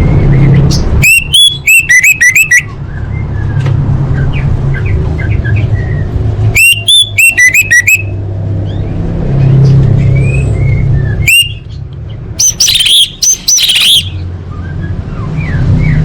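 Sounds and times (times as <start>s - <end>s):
thrush singing whistled runs: 0.1s - 3.6s, 5.4s - 8.2s, 10.2s - 11.8s, 12.4s - 16.0s
soft bird chirping: 0.2s - 16.0s.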